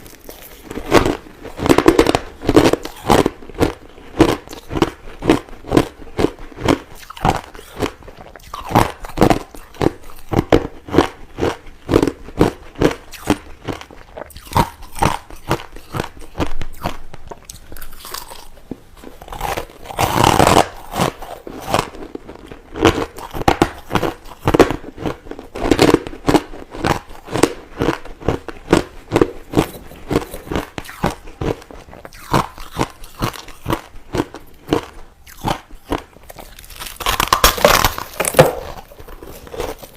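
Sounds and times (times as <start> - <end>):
chewing crushed ice: 0.0 - 39.9.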